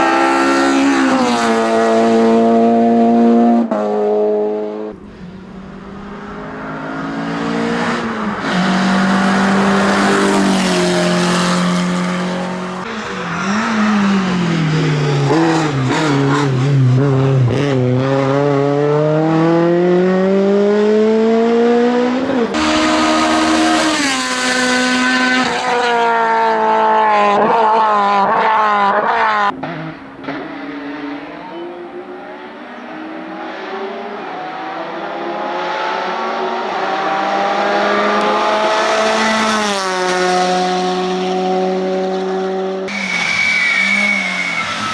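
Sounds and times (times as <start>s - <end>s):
race car engine at full throttle: 0.0s - 44.9s.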